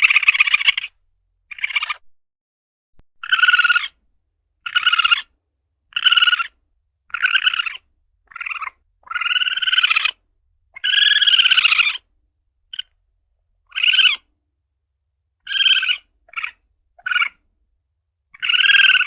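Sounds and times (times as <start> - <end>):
civet calling: 0.0 - 2.0, 3.2 - 4.0, 4.6 - 5.3, 5.9 - 12.1, 12.7 - 13.0, 13.6 - 14.3, 15.4 - 17.5, 18.3 - 19.0.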